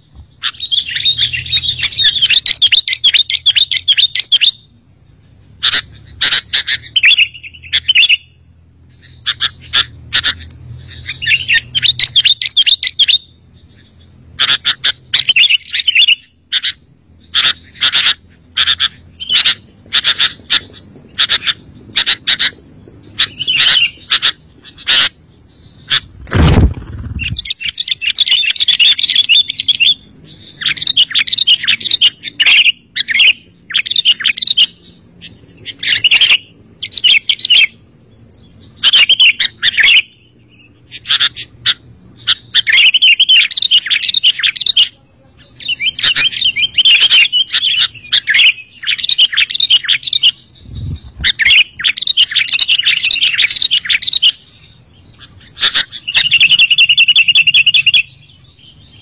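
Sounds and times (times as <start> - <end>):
bulbul singing: 0.0 - 59.0.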